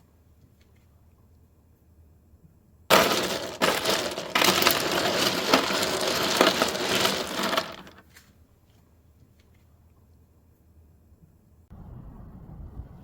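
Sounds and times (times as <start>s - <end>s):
ice dispenser dropping ice: 2.9s - 8.0s.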